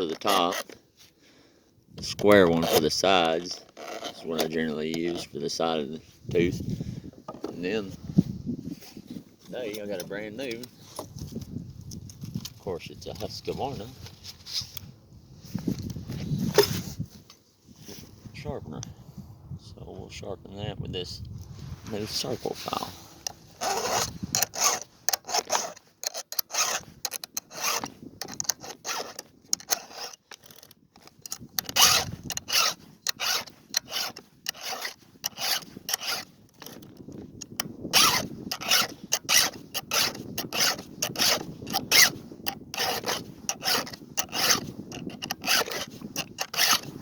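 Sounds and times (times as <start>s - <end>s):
file rasping on saw chain: 0.0s - 0.8s, 2.0s - 5.8s, 23.2s - 47.0s.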